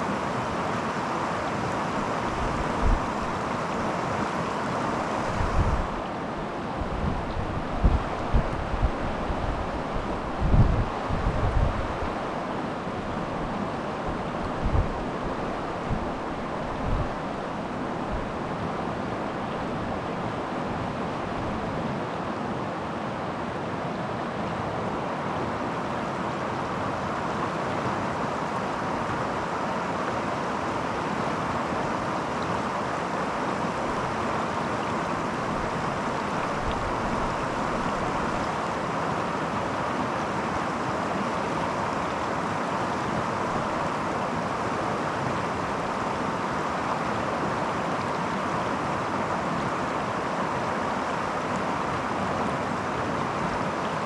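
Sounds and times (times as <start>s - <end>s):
creek water rushing: 0.0s - 54.0s
wind buffeting microphone: 5.3s - 6.0s, 6.8s - 12.2s, 13.0s - 18.5s.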